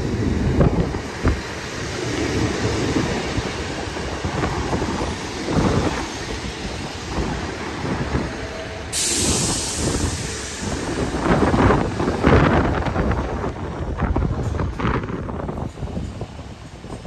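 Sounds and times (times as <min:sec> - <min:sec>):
diesel train rumbling: 0:00.0 - 0:17.0
wind buffeting microphone: 0:00.0 - 0:17.0
hiss of air: 0:08.8 - 0:12.6.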